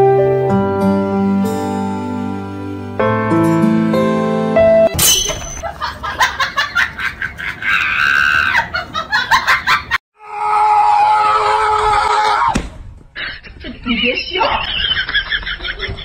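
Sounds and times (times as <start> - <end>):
person screaming and laughing: 7.3 - 12.6.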